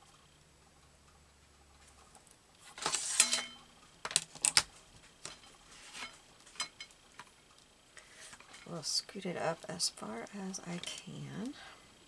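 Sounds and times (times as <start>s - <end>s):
paper rustling: 2.6s - 3.5s.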